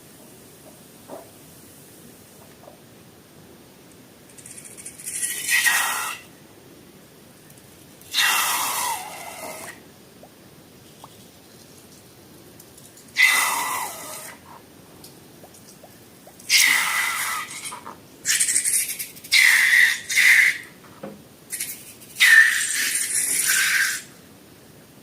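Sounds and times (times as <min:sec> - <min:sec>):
air hissing out of balloon: 0:05.2 - 0:06.3, 0:08.1 - 0:09.8, 0:13.2 - 0:14.4, 0:16.5 - 0:20.6, 0:21.5 - 0:24.1
balloon squealing whistle: 0:22.2 - 0:24.1.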